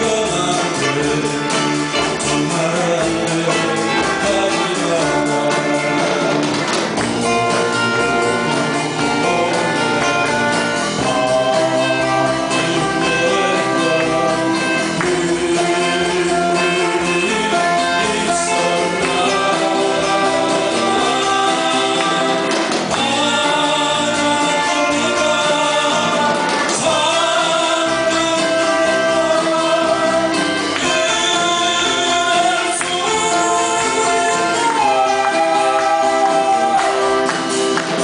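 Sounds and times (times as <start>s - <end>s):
live pop band playing: 0.0s - 38.0s
person singing: 0.0s - 38.0s.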